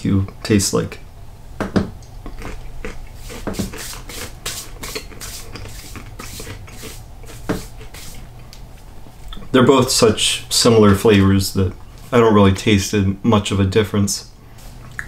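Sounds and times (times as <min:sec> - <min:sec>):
crunchy insects being chewed: 0:02.2 - 0:03.6.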